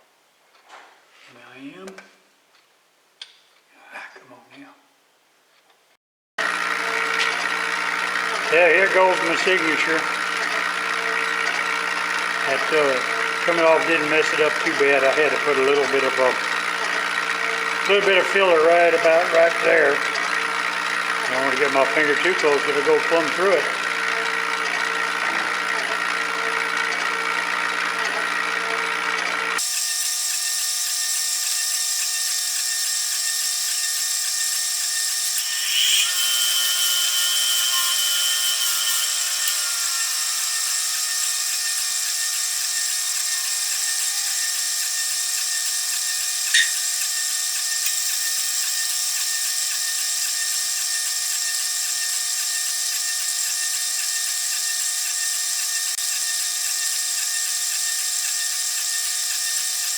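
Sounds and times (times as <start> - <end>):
power tool motor running: 6.4 - 59.9
sharp click: 46.5 - 46.8.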